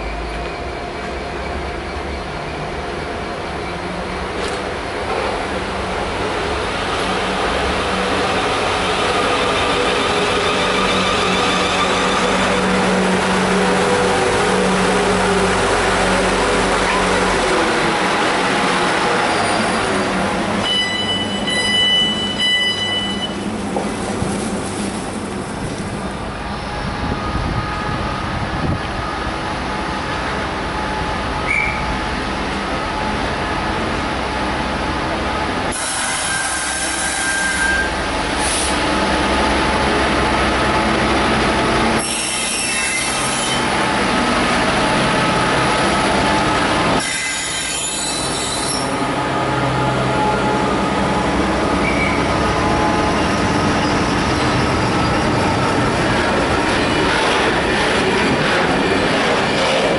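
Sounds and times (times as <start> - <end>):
diesel locomotive engine hum: 0.0 - 59.9
high-pitched wheel squeal: 20.6 - 23.4, 35.7 - 38.0, 42.0 - 43.6, 47.0 - 49.0, 51.8 - 52.3.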